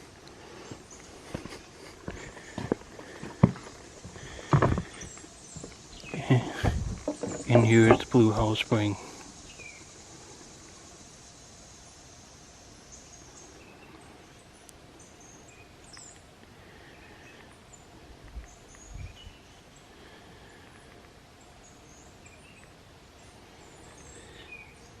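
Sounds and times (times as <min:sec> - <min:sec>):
birds chirping: 0:00.0 - 0:25.0
steady hiss: 0:00.0 - 0:25.0
low bumps: 0:01.4 - 0:09.1.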